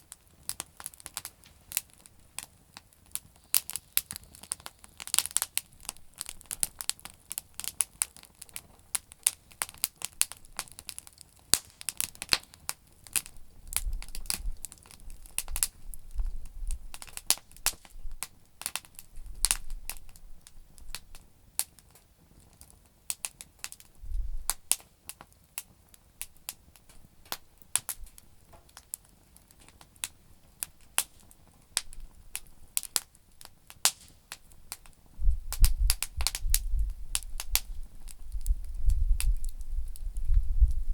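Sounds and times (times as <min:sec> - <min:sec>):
campfire crackling and popping: 0:00.0 - 0:40.9
wind rumble on microphone: 0:13.6 - 0:17.1, 0:24.0 - 0:24.6, 0:35.1 - 0:40.9.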